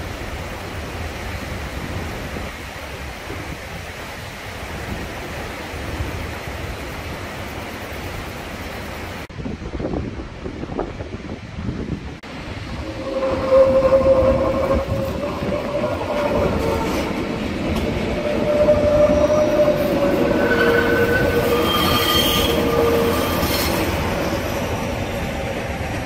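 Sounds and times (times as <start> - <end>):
high squealing tones: 12.7 - 25.4.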